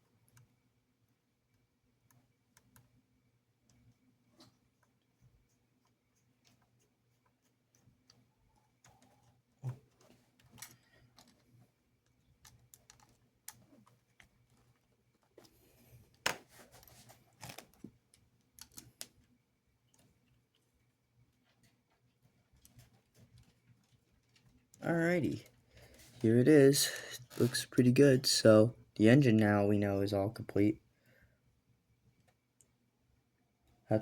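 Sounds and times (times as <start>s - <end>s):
plastic parts clicking: 8.8s - 14.8s, 17.4s - 19.2s.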